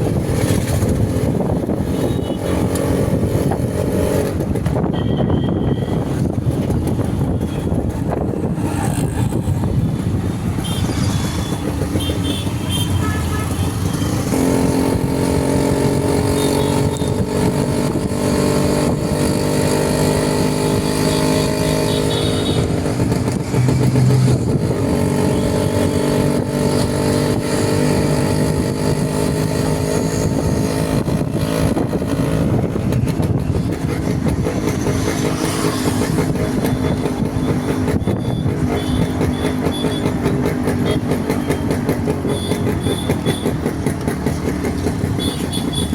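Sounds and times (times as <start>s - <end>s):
motorcycle engine running: 0.0s - 45.9s
road and wind noise: 0.0s - 45.9s.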